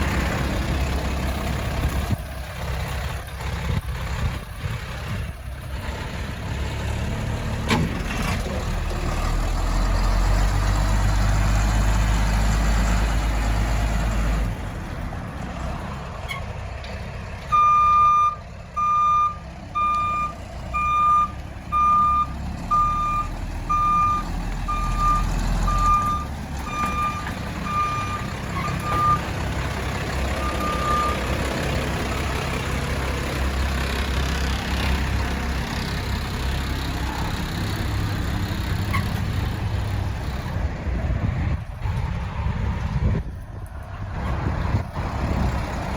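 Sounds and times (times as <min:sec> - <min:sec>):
truck engine running: 0:00.0 - 0:45.9.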